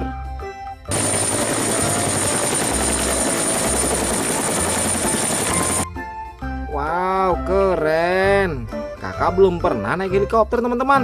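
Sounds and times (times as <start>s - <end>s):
helicopter rotor and engine: 0.9s - 5.8s.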